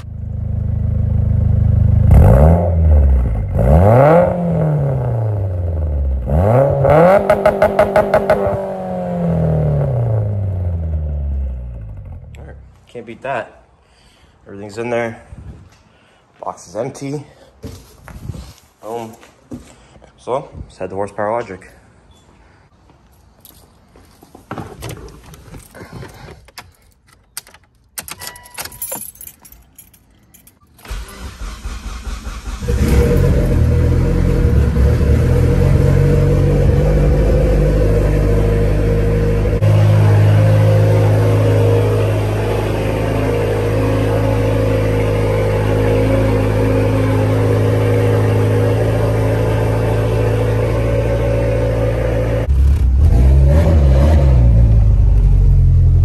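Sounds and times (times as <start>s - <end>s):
car engine starting and running: 0.0s - 12.7s, 27.3s - 56.0s
keys jangling: 23.4s - 23.8s, 25.2s - 31.2s.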